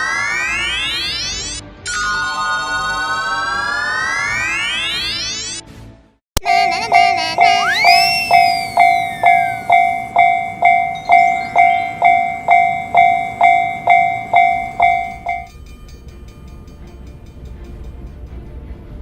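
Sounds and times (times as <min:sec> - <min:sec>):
level crossing warning bell: 0:06.4 - 0:18.2
low train rumble: 0:06.4 - 0:19.0.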